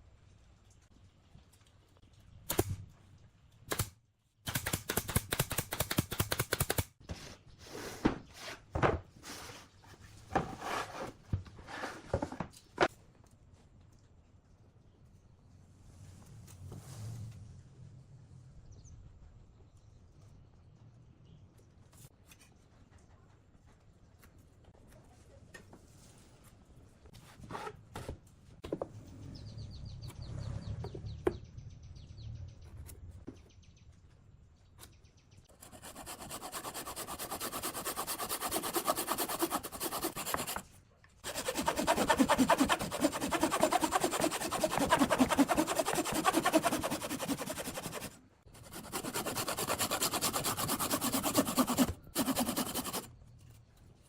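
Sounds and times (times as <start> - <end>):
sanding wood: 35.6 - 40.6, 41.2 - 53.1.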